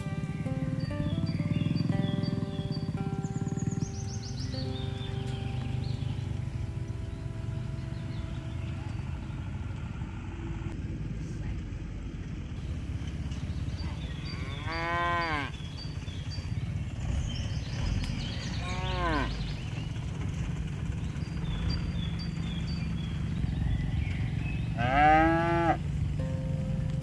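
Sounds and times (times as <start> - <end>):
steady low rumble: 0.0 - 14.4, 25.8 - 27.0
cattle mooing: 4.6 - 9.5, 14.1 - 15.6, 18.6 - 19.4, 24.8 - 27.0.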